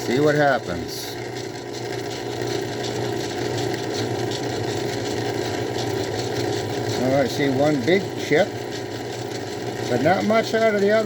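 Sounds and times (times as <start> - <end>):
drill bit cutting aluminium: 0.0 - 11.0
lathe running: 0.0 - 11.0.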